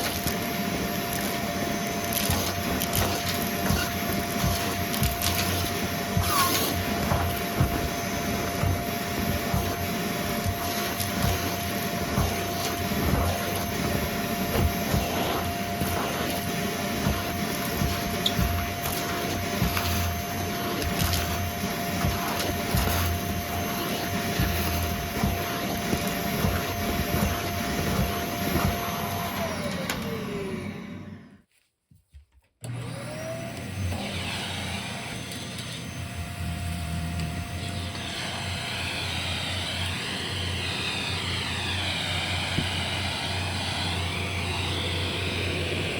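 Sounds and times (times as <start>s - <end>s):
vacuum cleaner motor whine: 0.0s - 31.5s, 32.6s - 45.9s.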